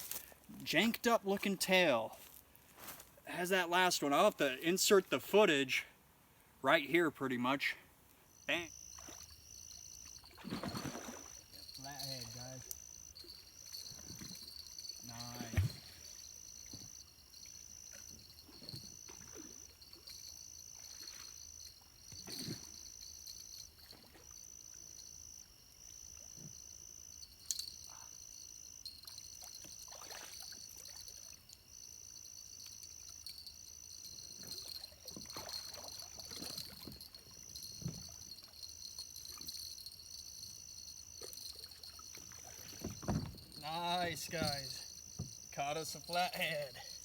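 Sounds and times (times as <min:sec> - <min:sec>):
water splashing and sloshing: 0:08.8 - 0:25.3, 0:28.9 - 0:31.6, 0:34.1 - 0:47.0.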